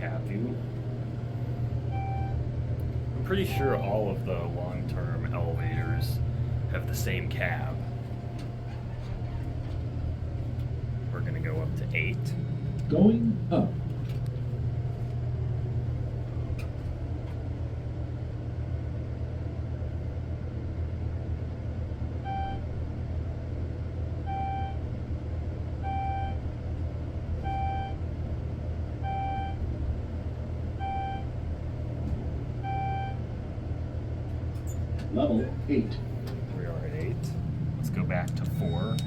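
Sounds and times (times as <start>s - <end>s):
elevator car humming: 0.0s - 39.0s
short single-pitched beep: 38.4s - 39.0s.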